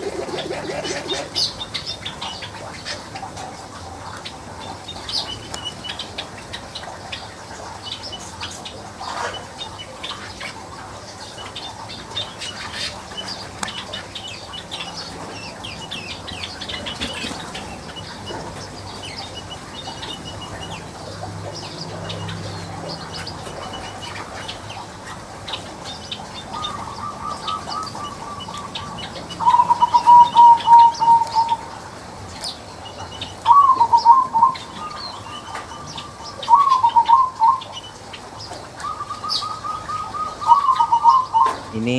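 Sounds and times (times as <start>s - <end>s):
birds chirping and chattering: 0.0s - 41.9s
bird pulsed trill: 32.9s - 38.0s.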